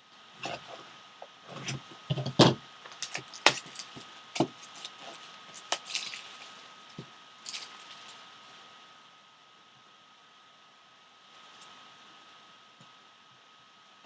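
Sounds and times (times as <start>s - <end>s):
box packaging being opened: 2.9s - 8.2s.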